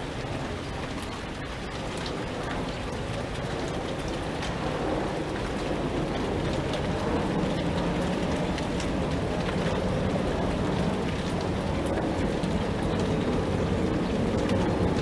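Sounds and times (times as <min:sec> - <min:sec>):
heavy rain falling: 0:00.0 - 0:15.0
raindrops ticking on hard surface: 0:00.0 - 0:15.0.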